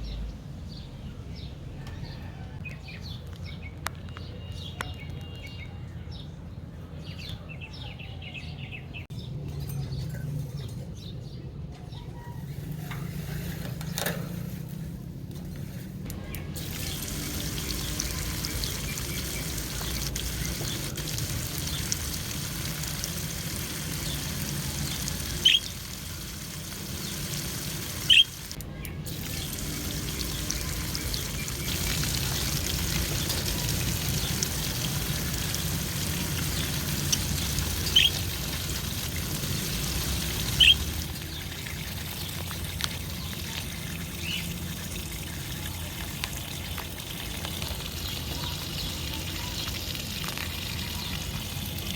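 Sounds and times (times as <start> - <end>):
water trickling and pouring: 16.5 - 51.9
budgie chirps: 25.4 - 25.8, 28.0 - 28.4, 37.1 - 38.3.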